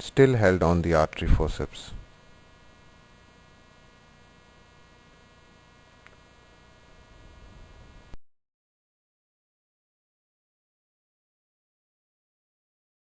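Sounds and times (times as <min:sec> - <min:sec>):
faint electrical hum and buzz: 0:00.0 - 0:08.2
small tick: 0:06.0 - 0:06.2.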